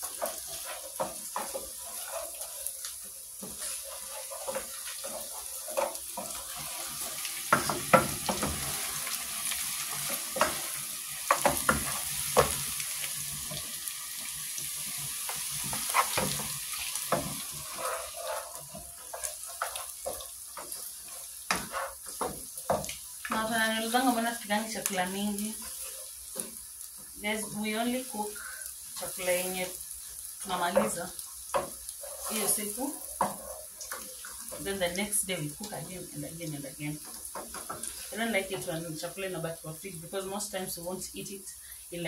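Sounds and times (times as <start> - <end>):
food sizzling in hot oil: 0.0 - 42.0
spoon knocking and scraping pot: 15.3 - 23.0.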